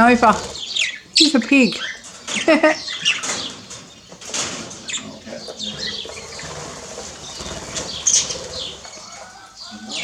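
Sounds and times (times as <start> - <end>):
birds flapping wings: 5.5 - 9.5.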